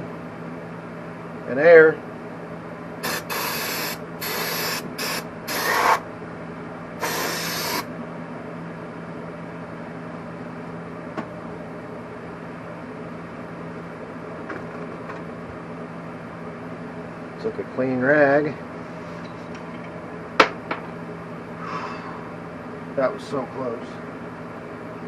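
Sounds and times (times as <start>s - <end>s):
steady background hum: 0.0s - 25.0s
spray and compressed air blasts: 3.0s - 6.0s, 7.0s - 7.9s.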